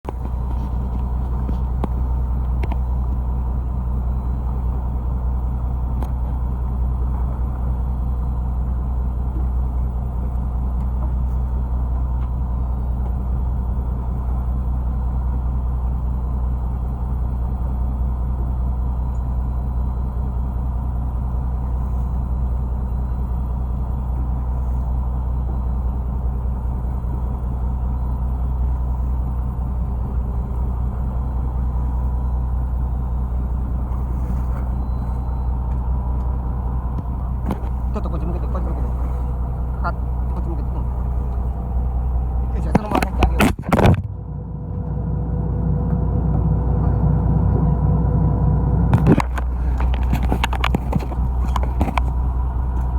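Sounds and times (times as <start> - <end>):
boat engine droning: 0.0 - 52.9.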